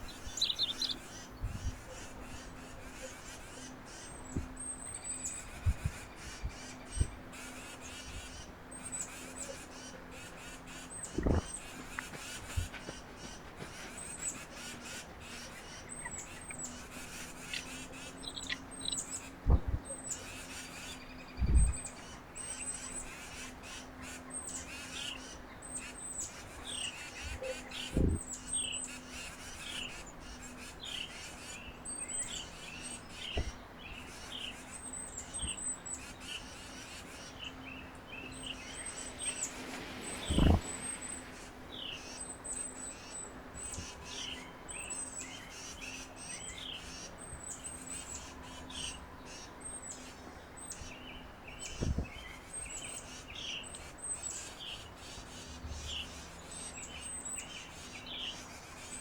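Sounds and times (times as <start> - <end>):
faint steady hum: 0.0 - 12.7
wild birds chirping: 0.0 - 59.0.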